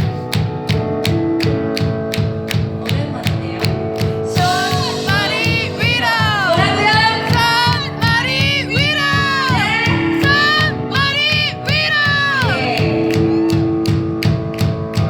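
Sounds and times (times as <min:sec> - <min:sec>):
drum beat: 0:00.0 - 0:15.0
person singing: 0:02.8 - 0:14.0.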